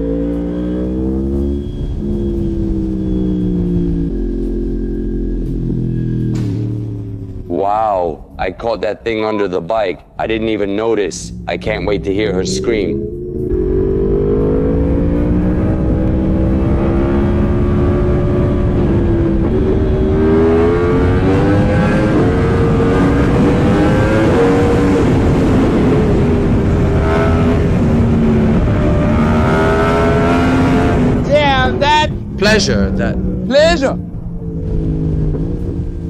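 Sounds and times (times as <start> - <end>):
motorcycle engine running: 10.2 - 32.4.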